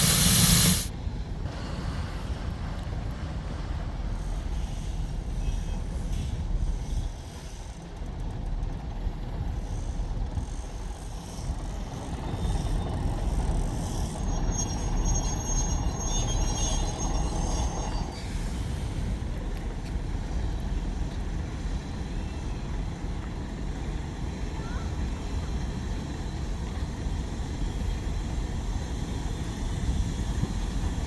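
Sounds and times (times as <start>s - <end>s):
diesel train rumbling: 0.0s - 31.0s
high-pitched metallic squeal: 12.3s - 18.9s.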